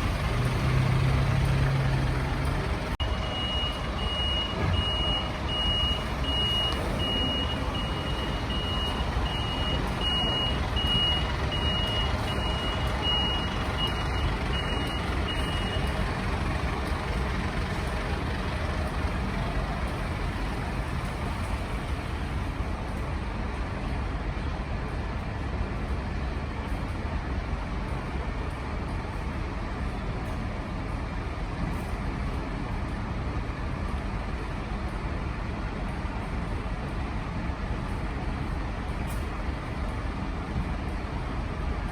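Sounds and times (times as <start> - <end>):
low engine rumble: 0.0 - 41.9
street noise: 0.0 - 41.9
vehicle reversing alarm beeping: 3.0 - 16.3.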